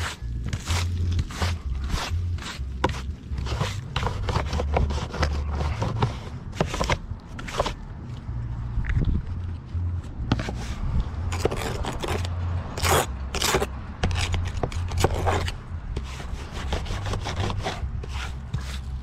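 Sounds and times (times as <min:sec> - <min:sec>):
scraping on a roof: 0:10.3 - 0:19.0.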